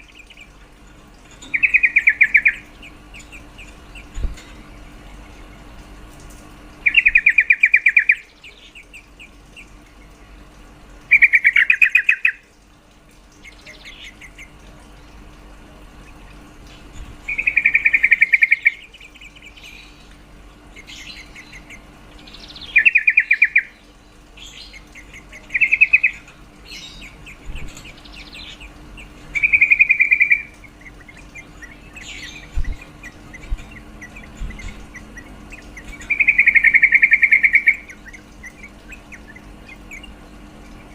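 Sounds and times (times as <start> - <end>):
bird rattling calls: 0.0 - 10.2, 11.0 - 12.4, 15.9 - 23.8, 24.4 - 40.9
bird chirps: 1.3 - 4.5, 6.8 - 10.1, 16.0 - 20.1, 20.8 - 23.8, 24.4 - 40.9.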